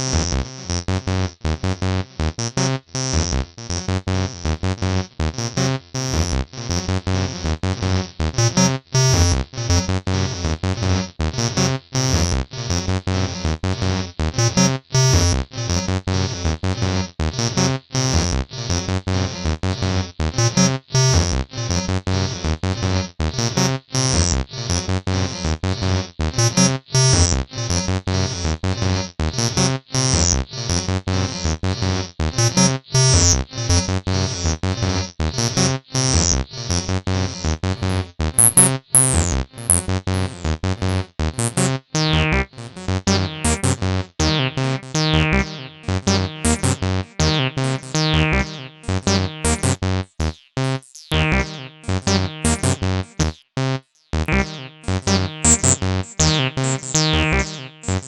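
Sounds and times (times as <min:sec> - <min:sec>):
acid synth line: 0:38.3 - 0:40.6, 0:42.0 - 0:53.4, 0:54.2 - 0:58.0.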